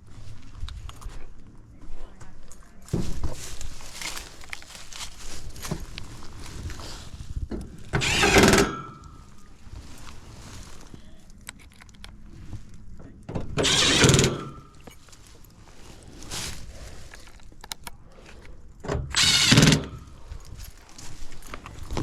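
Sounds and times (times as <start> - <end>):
cordless power driver running: 8.0 - 9.1, 13.6 - 14.7, 19.0 - 20.2.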